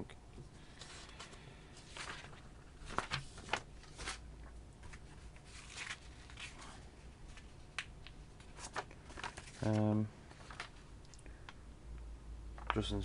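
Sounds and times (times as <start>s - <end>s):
packaging rustling: 0.7s - 4.2s, 4.8s - 10.8s.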